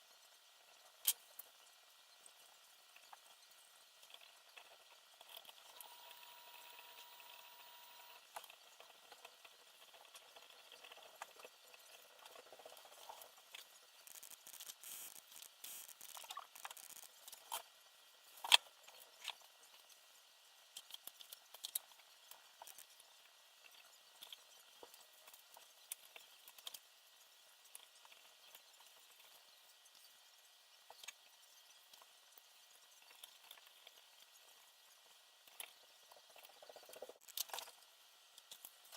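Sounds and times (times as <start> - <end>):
small parts clicking and rustling: 7.9 - 17.7, 18.3 - 26.9, 30.8 - 38.9.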